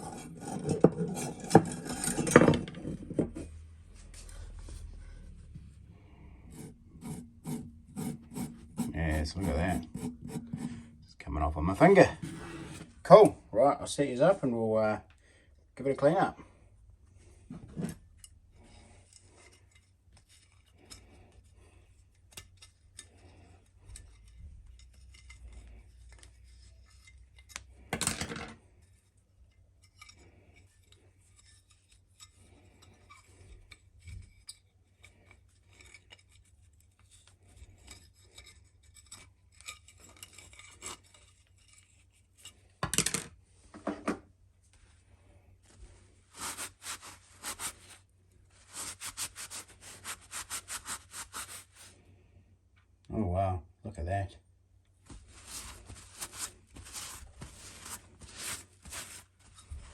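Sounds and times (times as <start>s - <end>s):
hand scrubbing metal hammer: 6.5s - 11.0s.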